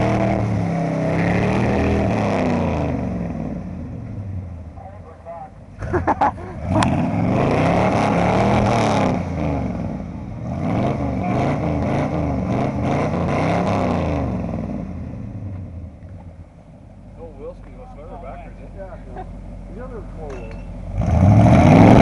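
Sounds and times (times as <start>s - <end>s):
truck engine revving hard: 0.0s - 3.7s, 5.8s - 15.2s, 20.9s - 22.0s.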